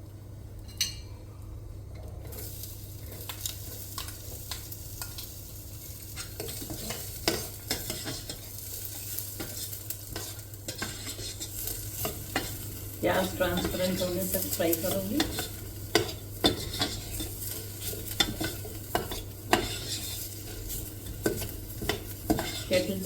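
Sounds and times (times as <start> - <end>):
onion sizzling in oil: 2.1 - 23.0
spoon scraping against kettle: 6.2 - 12.6, 15.0 - 22.9.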